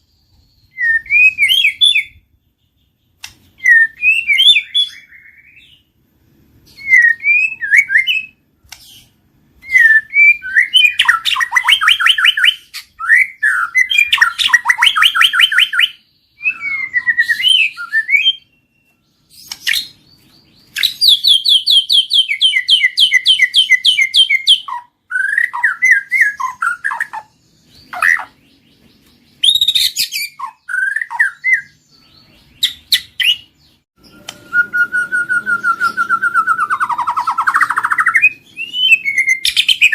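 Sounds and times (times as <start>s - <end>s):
songbird whistling and trilling: 0.0s - 6.0s, 6.6s - 39.9s.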